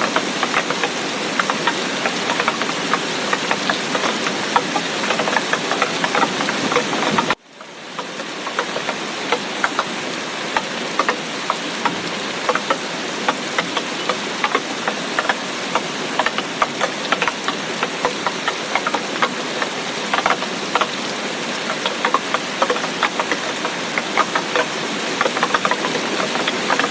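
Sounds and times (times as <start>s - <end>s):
rain drops on hard surface: 0.0s - 26.9s.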